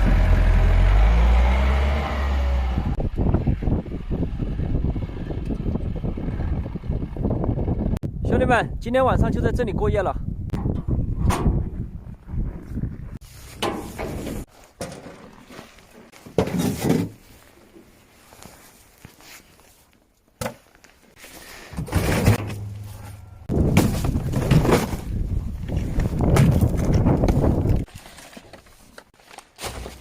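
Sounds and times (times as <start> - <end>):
rustling: 12.6 - 30.0
irregular thuds and knocks: 21.7 - 27.9.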